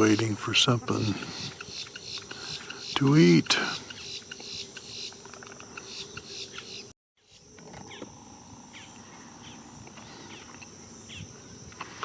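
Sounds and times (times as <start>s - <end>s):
chirping bird calls: 0.0s - 8.0s
high-pitched insect drone: 0.0s - 12.0s.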